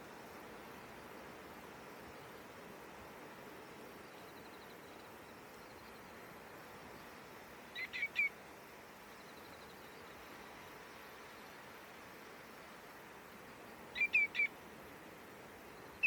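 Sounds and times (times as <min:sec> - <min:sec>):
bird giving ringing calls: 0:14.0 - 0:14.5.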